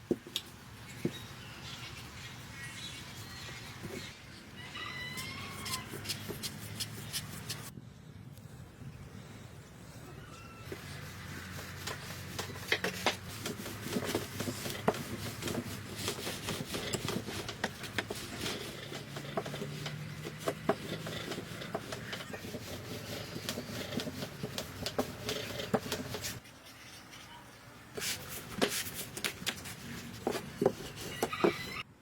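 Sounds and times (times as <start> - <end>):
rubbing and scraping on wood: 4.8 - 7.7, 10.7 - 31.8.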